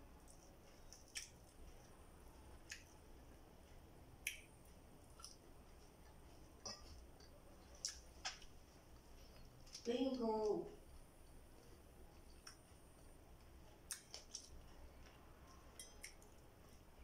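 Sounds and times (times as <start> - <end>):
mouth chewing wet smacks: 0.3 - 1.6, 5.1 - 5.4, 13.8 - 15.2.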